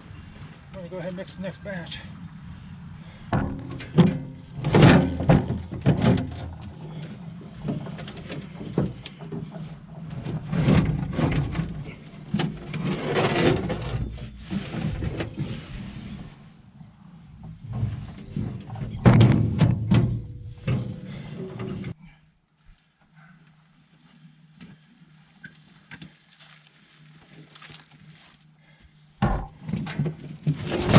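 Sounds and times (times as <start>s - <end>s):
garden tool scraping soil: 12.6s - 16.2s.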